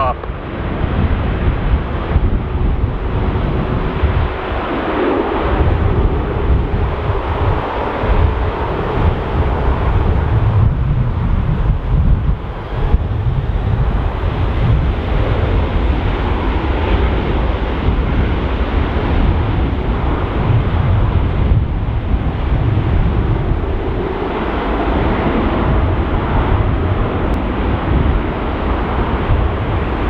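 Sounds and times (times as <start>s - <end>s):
jet engines rumbling: 0.0s - 30.0s
wind buffeting microphone: 0.0s - 30.0s.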